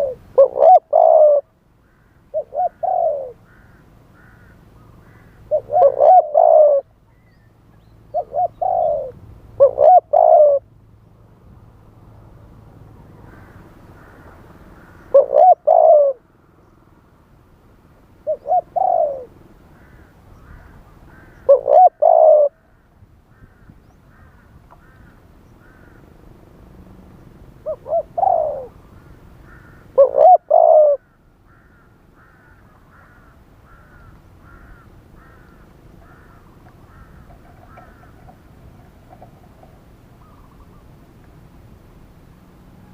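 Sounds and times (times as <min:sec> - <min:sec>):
dove cooing: 0:00.0 - 0:06.9, 0:08.1 - 0:10.7, 0:14.8 - 0:16.3, 0:18.2 - 0:22.7, 0:27.6 - 0:41.0
bird chirping faintly: 0:33.7 - 0:41.1.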